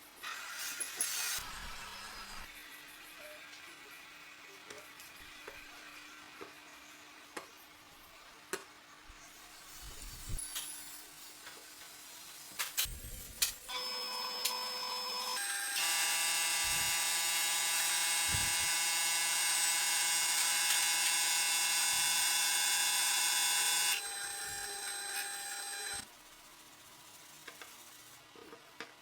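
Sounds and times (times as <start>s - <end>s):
power tool motor whining: 13.7s - 26.0s.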